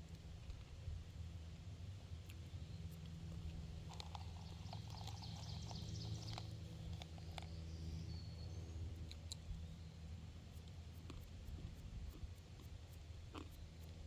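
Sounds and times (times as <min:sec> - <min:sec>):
songbirds chirping: 0:01.8 - 0:10.8.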